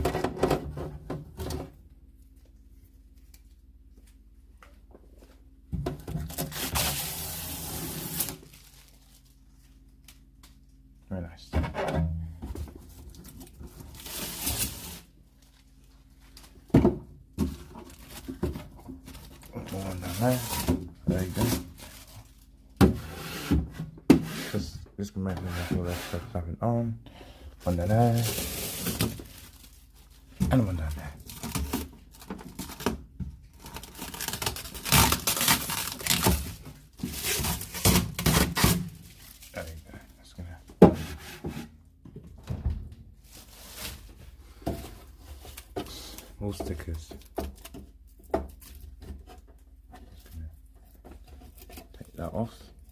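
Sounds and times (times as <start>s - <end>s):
plastic film being peeled: 6.3s - 10.7s, 33.6s - 39.8s
plastic film peeling off: 33.6s - 36.6s.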